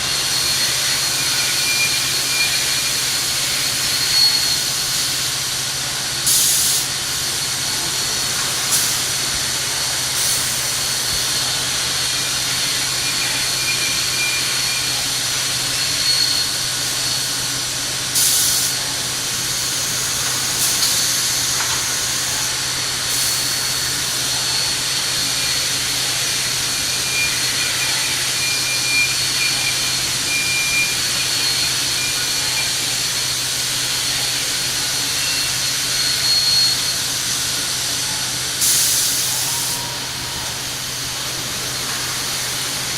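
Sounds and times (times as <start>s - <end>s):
sharp hissing bursts: 6.2s - 7.5s, 8.2s - 28.4s, 31.0s - 42.9s.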